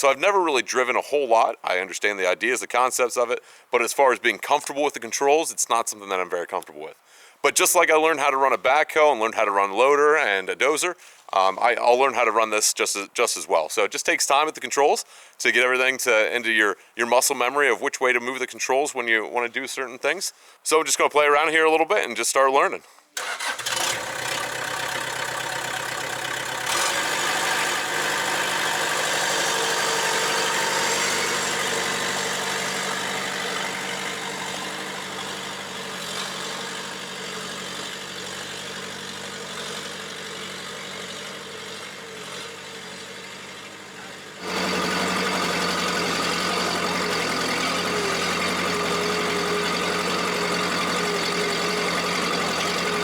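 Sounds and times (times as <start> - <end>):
diesel engine running: 23.2 - 53.0.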